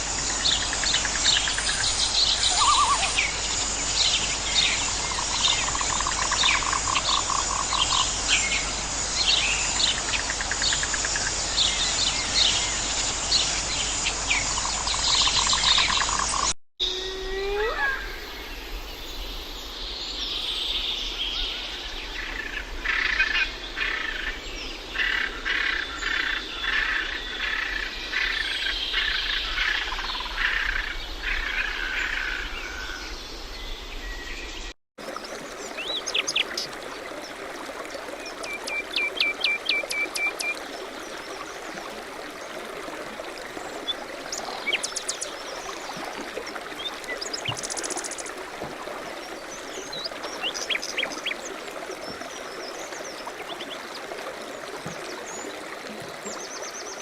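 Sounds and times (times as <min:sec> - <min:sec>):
birds chirping and singing: 0:01.4 - 0:03.4.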